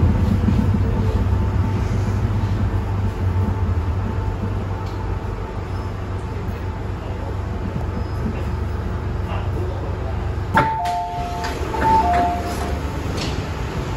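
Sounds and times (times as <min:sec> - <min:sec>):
train running gear rumble: 0:00.0 - 0:13.9.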